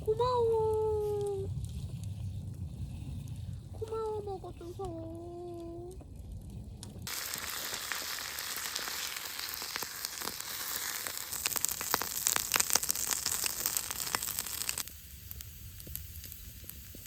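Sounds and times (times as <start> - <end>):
food sizzling in a hot pan: 7.1 - 17.0.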